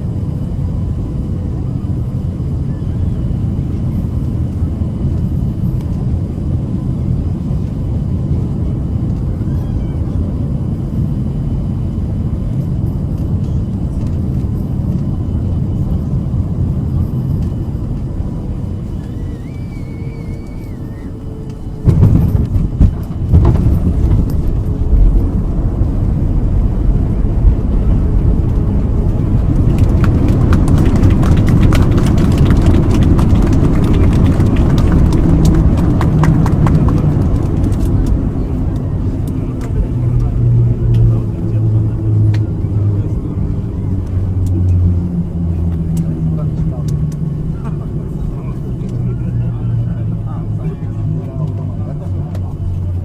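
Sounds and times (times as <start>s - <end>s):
jet engines rumbling in cabin: 0.0s - 53.0s.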